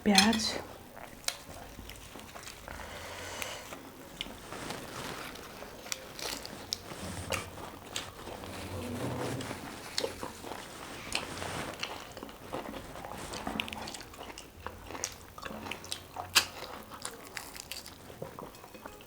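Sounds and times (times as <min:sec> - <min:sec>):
person chewing and biting: 0:05.1 - 0:08.5, 0:10.0 - 0:18.6.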